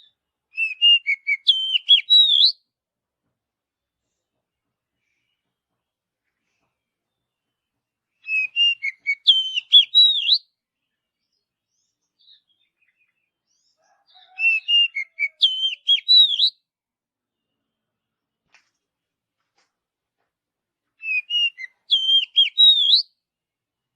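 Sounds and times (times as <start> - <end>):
bird singing whistled notes: 0.0 - 2.6, 8.1 - 13.6, 14.2 - 16.6, 21.0 - 23.2.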